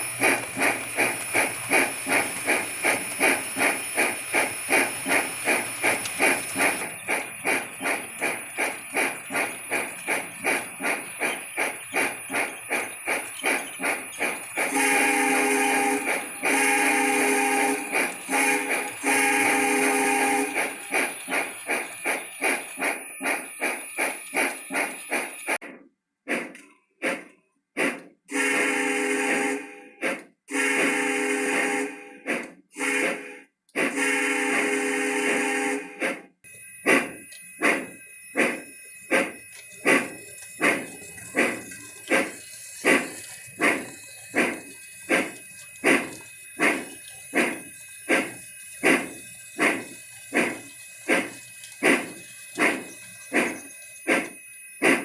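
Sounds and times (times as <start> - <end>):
steam locomotive exhaust chuffing: 0.0 - 55.0
faint steady high tone: 36.5 - 55.0.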